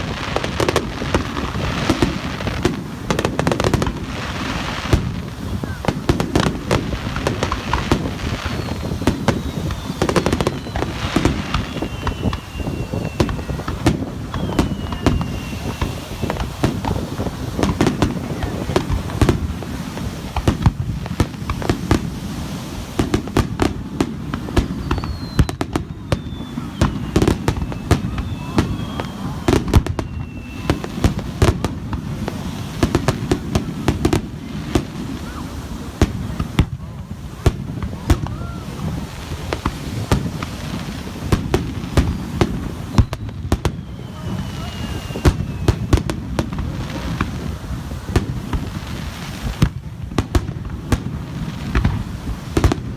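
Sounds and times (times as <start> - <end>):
crackling fireworks reports: 0.0 - 52.9
sharp fireworks bangs: 0.0 - 52.9
fireworks shells bursting: 1.6 - 23.6.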